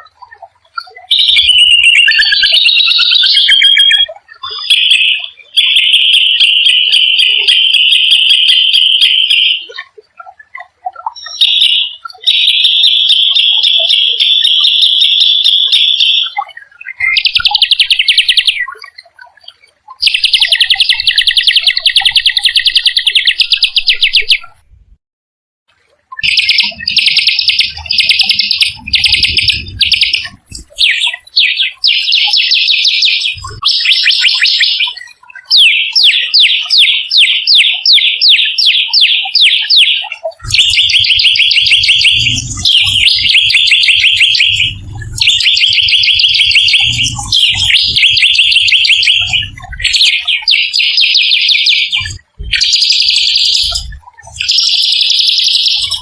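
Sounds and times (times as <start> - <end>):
songbird trilling: 1.1 - 9.7, 11.1 - 16.4, 17.0 - 18.7, 20.0 - 24.5, 26.2 - 56.0
low rumble: 41.7 - 48.2.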